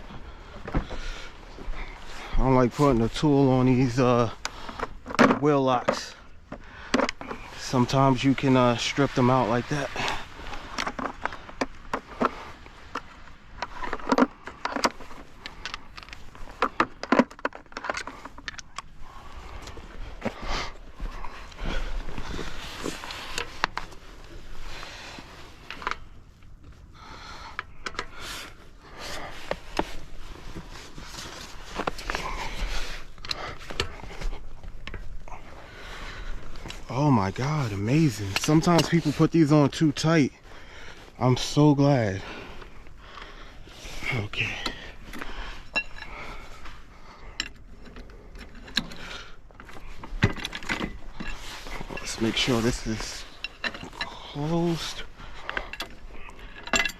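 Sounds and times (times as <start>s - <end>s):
rustling: 0.0s - 56.9s
metal clicks and scrapes: 37.6s - 40.1s
metal hand tools clinking: 50.4s - 56.9s.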